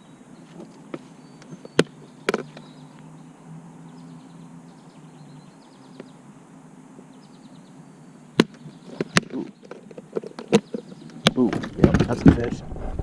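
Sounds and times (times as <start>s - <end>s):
faint high chirping: 0.0s - 6.3s.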